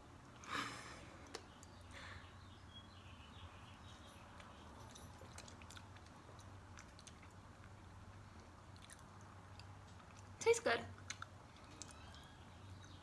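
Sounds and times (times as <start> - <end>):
people chewing: 4.3 - 13.0.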